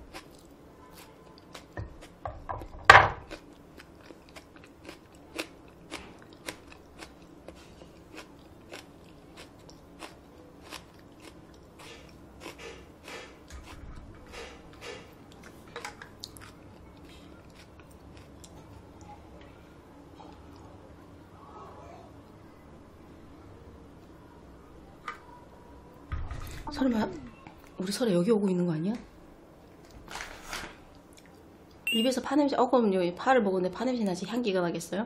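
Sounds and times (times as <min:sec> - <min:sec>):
crisp chewing: 0:03.2 - 0:12.9.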